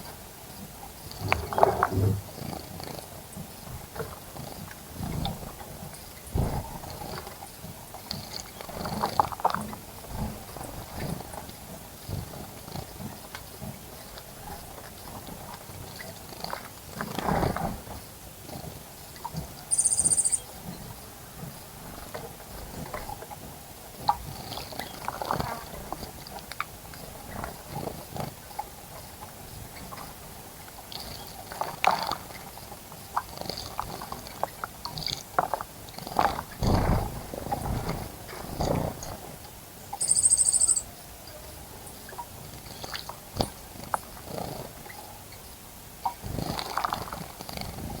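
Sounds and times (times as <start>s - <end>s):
faint bird chirps: 19.7s - 20.5s, 40.0s - 41.4s.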